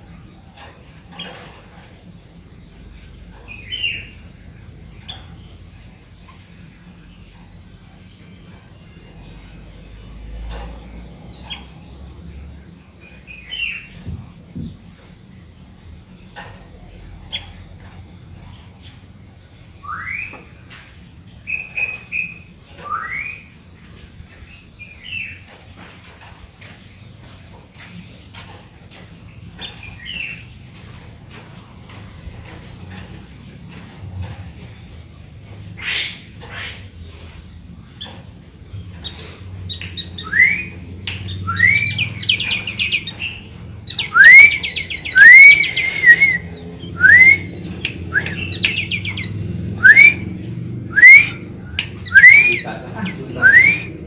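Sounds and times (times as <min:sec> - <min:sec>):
bird singing whistled phrases: 0:19.8 - 0:20.5, 0:21.5 - 0:23.5, 0:39.7 - 0:43.2, 0:43.9 - 0:50.3, 0:50.9 - 0:52.7, 0:53.4 - 0:54.0.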